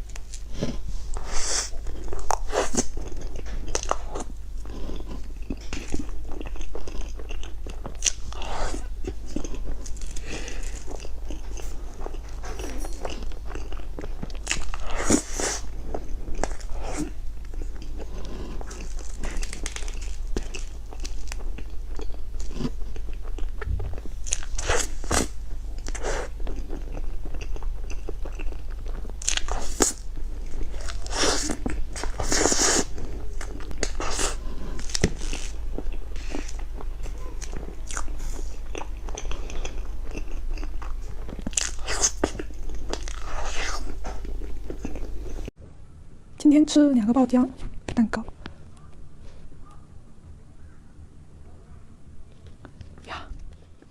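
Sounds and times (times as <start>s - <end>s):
steady low hum: 0.0s - 53.9s
wet chewing and lip smacks: 5.0s - 45.5s.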